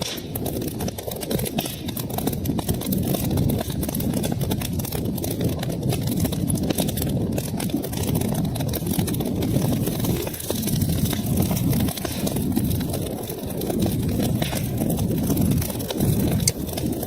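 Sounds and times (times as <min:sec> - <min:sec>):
wood fire crackling: 0:00.0 - 0:17.0
low rumble: 0:07.4 - 0:17.0.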